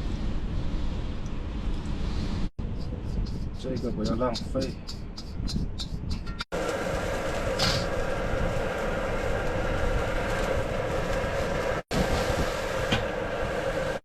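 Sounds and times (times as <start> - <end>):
gas burner rushing: 6.5 - 14.0
sharp hiss: 7.5 - 8.0.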